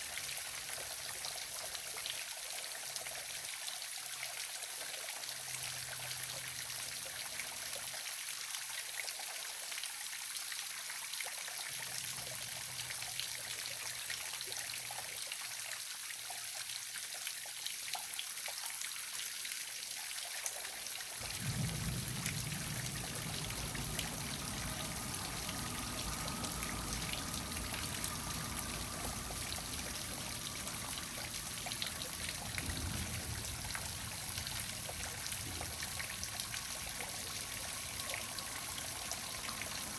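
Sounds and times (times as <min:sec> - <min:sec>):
low rumble: 0:21.2 - 0:39.9
waterfall splashing: 0:21.2 - 0:39.9.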